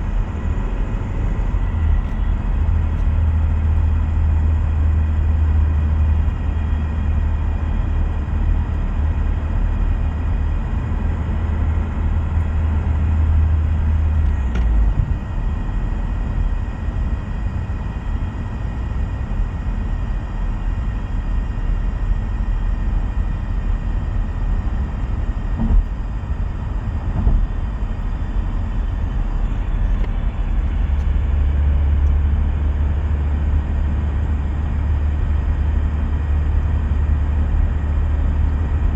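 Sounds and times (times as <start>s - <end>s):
road noise: 0.0s - 15.6s, 26.7s - 37.6s
strong low drone: 0.0s - 17.0s, 24.3s - 38.9s.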